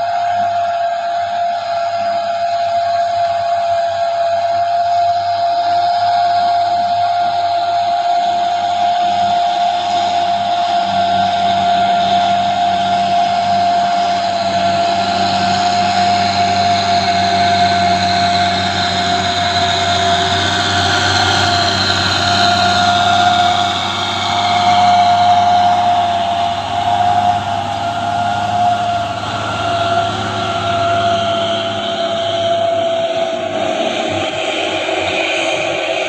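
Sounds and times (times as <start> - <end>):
truck engine running: 0.0 - 36.0.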